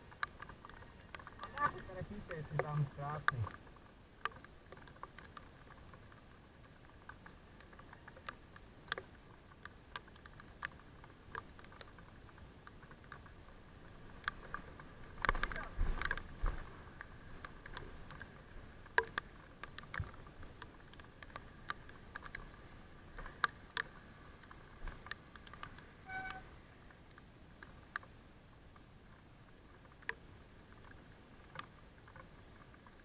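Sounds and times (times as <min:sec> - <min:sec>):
faint steady hum: 0:00.0 - 0:33.0
sharp clicks and taps: 0:00.2 - 0:03.6.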